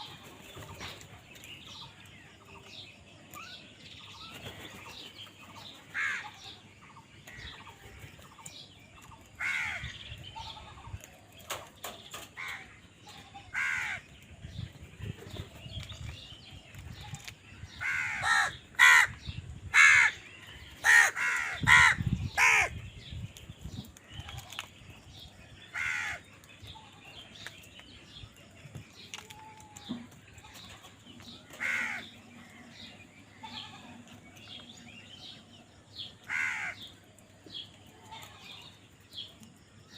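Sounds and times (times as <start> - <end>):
crows cawing: 5.9 - 6.3, 9.4 - 10.0, 13.5 - 14.0, 17.8 - 20.2, 20.8 - 22.7, 25.7 - 26.2, 31.6 - 32.1, 36.3 - 36.8.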